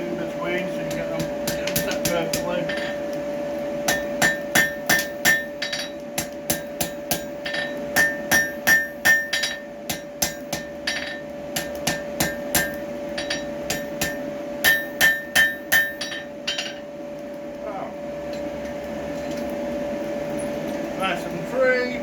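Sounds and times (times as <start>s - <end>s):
steady hum: 0.0s - 22.0s
hammer ringing on anvil: 0.9s - 3.0s, 3.9s - 16.8s.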